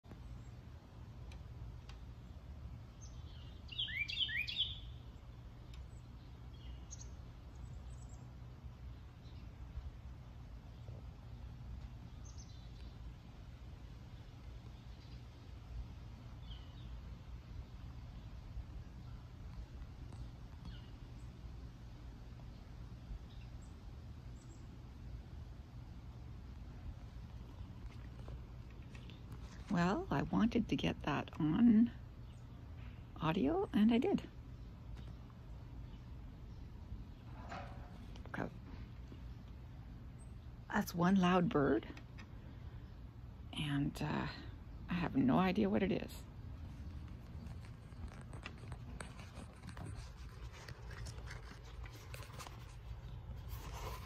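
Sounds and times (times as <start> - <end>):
bird chirping: 2.9 - 9.6, 10.7 - 13.1, 14.1 - 15.4, 16.4 - 17.1, 18.1 - 21.3
bird calling sharp notes: 3.7 - 5.0.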